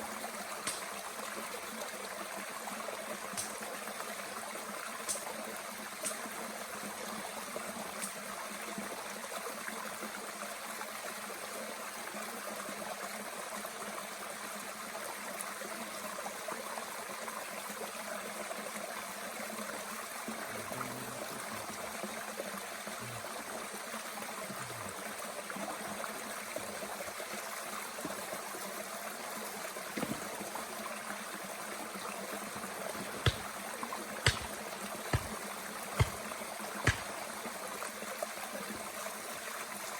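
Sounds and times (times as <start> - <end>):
stream water flowing: 0.0 - 39.9
sharp pops: 33.0 - 37.2.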